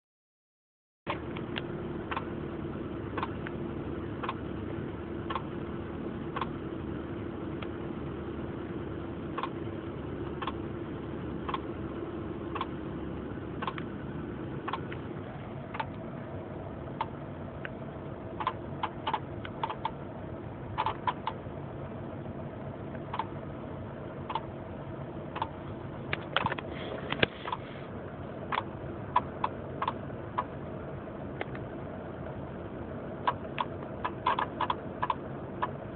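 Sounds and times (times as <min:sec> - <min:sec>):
sharp engine clicks: 0:01.1 - 0:06.8, 0:07.5 - 0:07.8, 0:09.3 - 0:16.2, 0:16.9 - 0:20.0, 0:20.7 - 0:21.5, 0:22.9 - 0:23.5, 0:24.2 - 0:24.5, 0:25.2 - 0:27.8, 0:28.4 - 0:30.6, 0:31.4 - 0:32.3, 0:33.2 - 0:35.9
car engine humming: 0:01.1 - 0:35.9.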